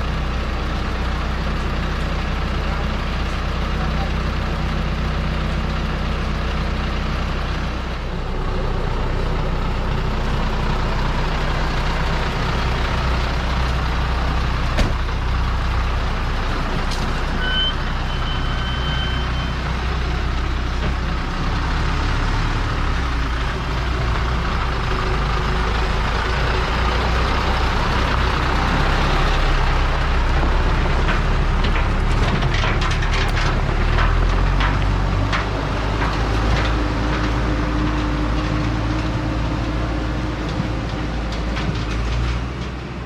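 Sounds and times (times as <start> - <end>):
diesel truck engine running: 0.0 - 43.0
sharp clicks and knocks: 30.4 - 39.2.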